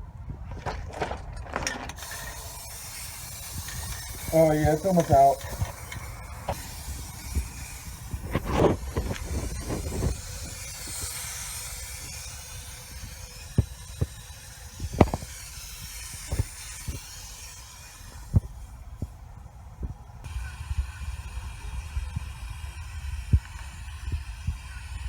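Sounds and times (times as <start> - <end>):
aerosol spray paint hissing: 2.0 - 19.2.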